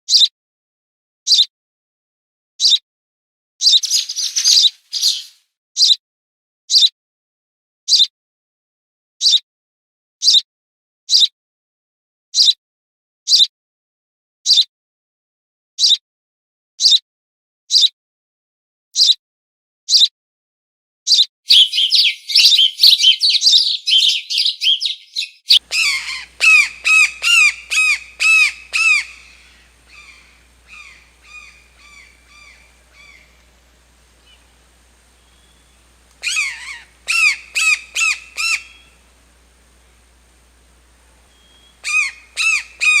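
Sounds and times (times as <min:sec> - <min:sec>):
quick chattering bird calls: 0:03.6 - 0:05.4, 0:21.5 - 0:39.2, 0:41.3 - 0:43.0
loud squawking bird calls: 0:03.6 - 0:06.0, 0:21.1 - 0:43.0
short sharp bird calls: 0:03.6 - 0:06.0, 0:21.1 - 0:43.0.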